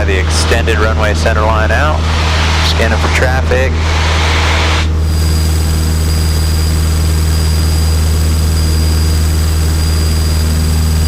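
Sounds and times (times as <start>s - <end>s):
propeller plane engine droning: 0.0s - 11.0s
thin high whine: 0.0s - 11.0s.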